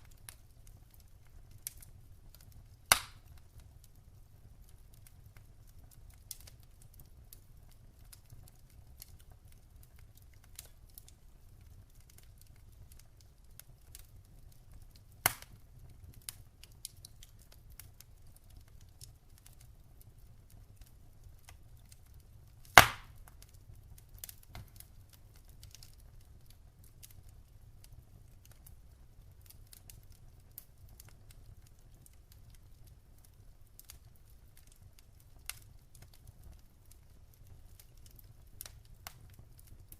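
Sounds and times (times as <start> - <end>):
wood fire crackling: 0.0 - 39.9
sharp loud fire pops: 2.9 - 3.2, 22.8 - 23.1.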